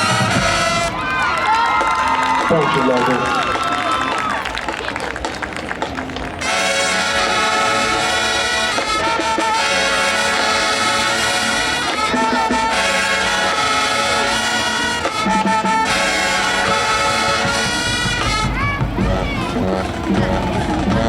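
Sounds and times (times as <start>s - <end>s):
brass section playing chords: 0.0s - 1.5s, 6.4s - 21.0s
marching drums: 0.0s - 21.0s.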